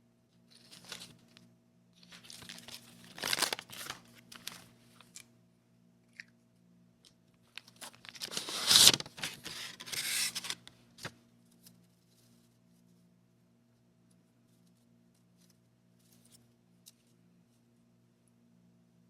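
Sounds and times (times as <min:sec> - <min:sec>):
packaging tearing: 0:02.1 - 0:04.6, 0:07.6 - 0:10.7.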